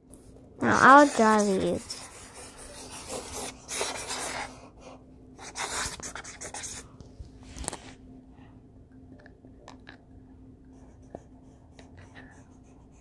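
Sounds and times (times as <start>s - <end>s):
drawing tool scratching paper: 0.8s - 4.5s.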